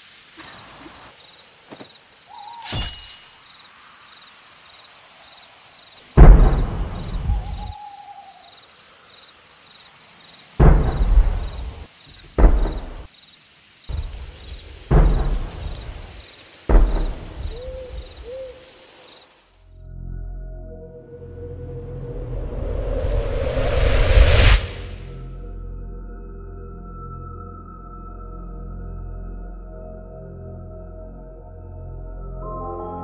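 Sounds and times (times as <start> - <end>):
night insects chirping: 0.0 - 19.7
owl hooting: 2.3 - 3.0, 7.1 - 8.6, 17.1 - 18.8
deep cannon booms: 6.2 - 7.7, 10.6 - 13.1, 13.9 - 16.1, 16.7 - 17.8.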